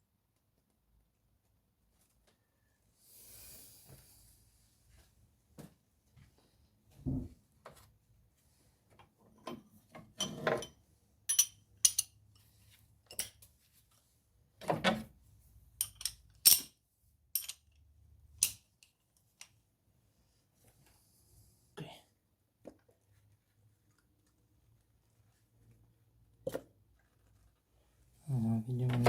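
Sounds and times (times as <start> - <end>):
metal socket clinking: 11.3 - 12.2, 15.8 - 16.7, 17.4 - 17.8.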